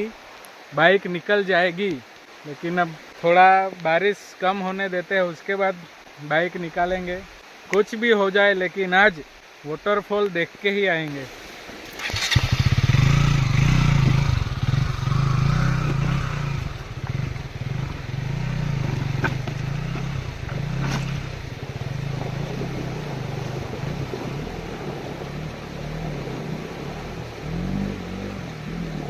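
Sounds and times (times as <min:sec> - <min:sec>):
motorcycle engine running: 0:12.0 - 0:29.0.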